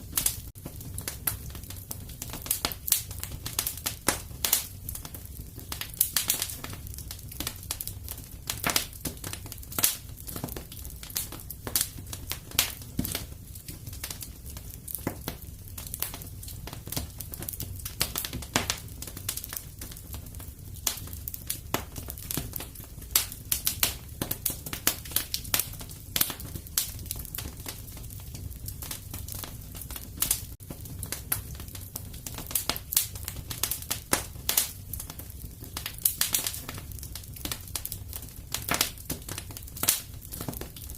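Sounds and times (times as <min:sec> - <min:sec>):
low rumble of flames: 0:00.0 - 0:40.9
wood fire crackling and popping: 0:00.0 - 0:40.9.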